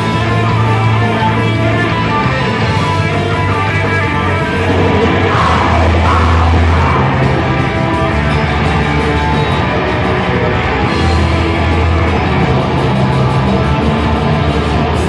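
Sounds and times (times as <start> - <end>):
heavy rock band music: 0.0 - 15.0.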